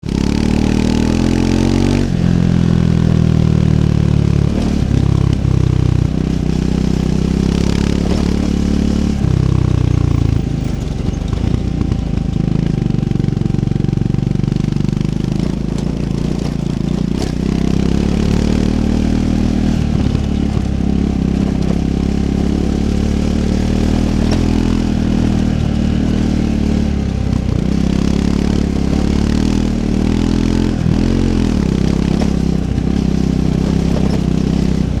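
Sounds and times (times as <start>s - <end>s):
motorcycle engine revving under load: 0.0s - 35.0s
motorcycle knocks over rough ground: 7.1s - 12.6s, 19.4s - 35.0s.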